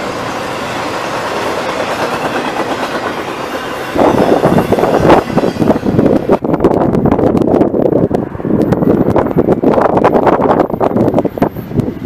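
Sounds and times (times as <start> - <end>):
freight train rumbling past: 0.0 - 12.0
loud gusting rush: 0.0 - 12.0
wheels clacking on rails: 0.0 - 12.0.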